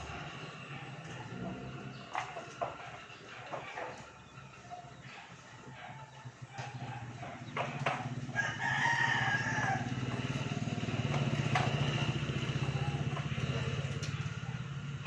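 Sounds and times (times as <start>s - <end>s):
small engine running: 0.0s - 15.0s
rooster crowing: 8.2s - 11.0s.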